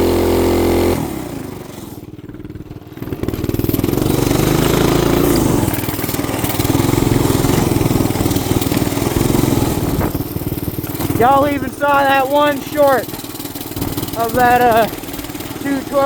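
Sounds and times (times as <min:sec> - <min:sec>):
small engine revving: 0:00.0 - 0:16.0.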